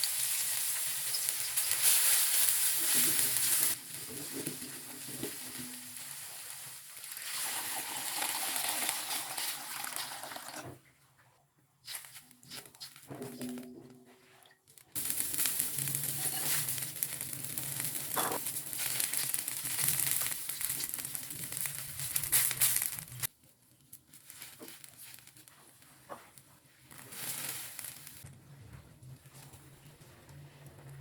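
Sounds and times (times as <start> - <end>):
food sizzling in hot oil: 0.0 - 10.3, 15.0 - 23.3
quiet kitchen sounds: 0.0 - 31.0.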